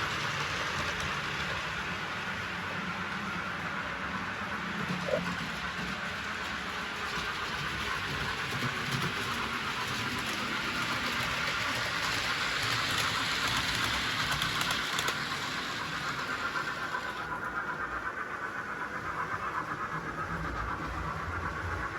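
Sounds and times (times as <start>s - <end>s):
model train whirring and clicking: 0.0s - 21.9s.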